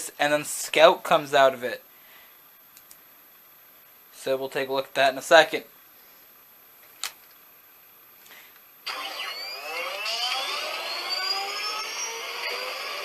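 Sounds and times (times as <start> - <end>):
toy jet engine sound effect: 8.9 - 13.0.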